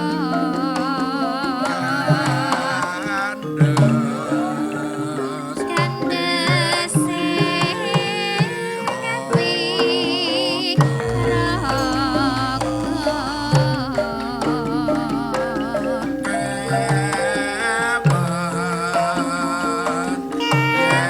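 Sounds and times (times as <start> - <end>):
gamelan ensemble playing: 0.0 - 21.0
hand drum strokes: 0.0 - 21.0
person singing wavering melody: 0.0 - 21.0
low steady hum: 11.0 - 17.1.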